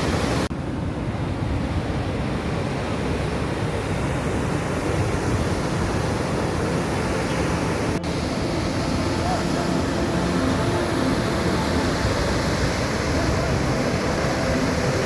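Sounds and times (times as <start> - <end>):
waterfall crashing onto rocks: 0.0 - 0.5, 8.1 - 15.0.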